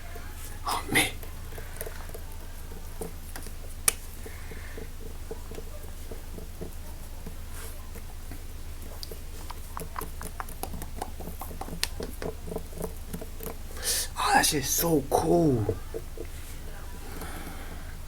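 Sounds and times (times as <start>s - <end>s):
steady low hum: 0.0s - 18.0s
fingers tapping and scratching: 1.2s - 13.8s.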